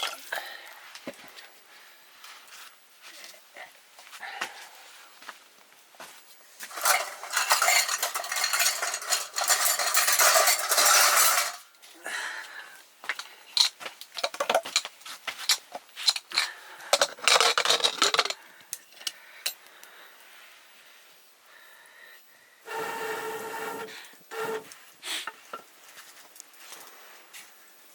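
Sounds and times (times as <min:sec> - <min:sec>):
metal clinking on pot: 0:06.7 - 0:11.6
metal spoon scraping pot: 0:06.7 - 0:11.6, 0:22.7 - 0:24.8.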